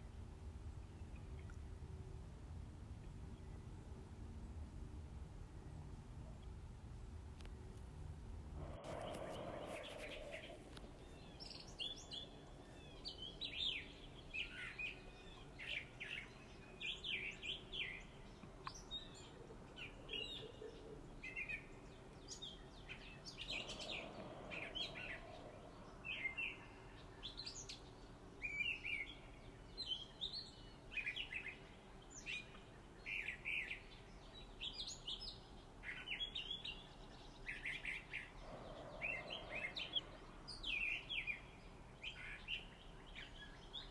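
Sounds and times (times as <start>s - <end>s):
faint steady hum: 0.0s - 43.9s
small birds chirping: 7.4s - 43.9s.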